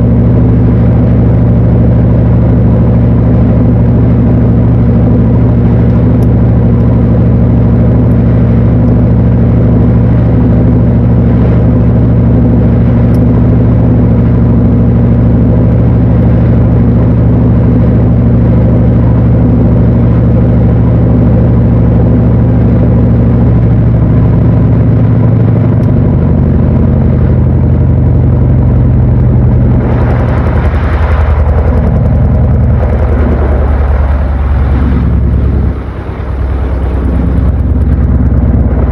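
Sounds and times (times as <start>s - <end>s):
washing machine humming: 0.0s - 38.9s.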